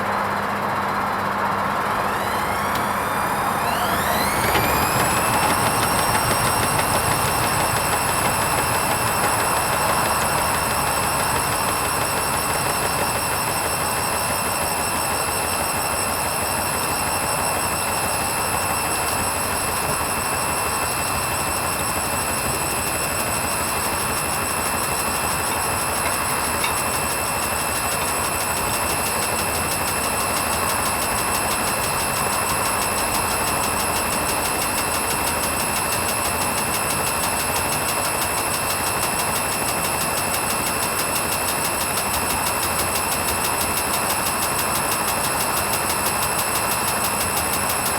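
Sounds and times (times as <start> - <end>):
washing machine running: 0.0 - 47.9
high-pitched whine: 1.7 - 14.1.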